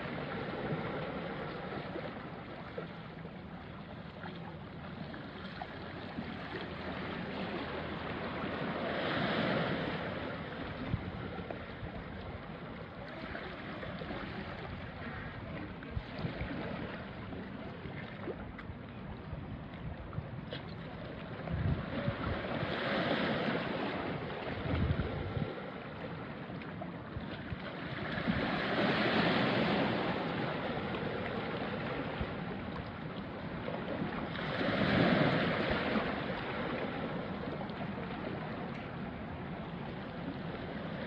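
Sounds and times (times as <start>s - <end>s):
waves washing onto rocky shore: 5.9s - 11.7s, 21.3s - 26.3s, 27.4s - 41.0s.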